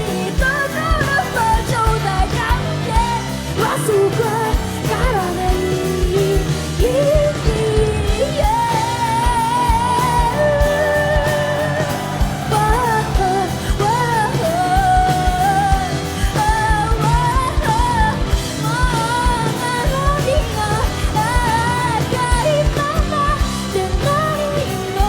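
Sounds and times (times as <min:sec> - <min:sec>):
live pop-rock band playing: 0:00.0 - 0:25.0.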